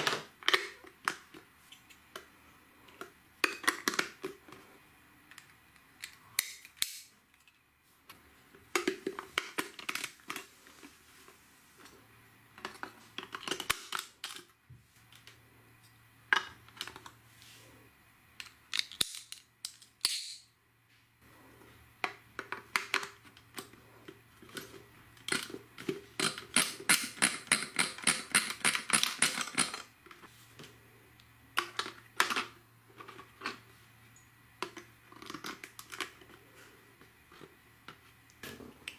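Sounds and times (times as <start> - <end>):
plastic bricks clicking: 18.4 - 20.4.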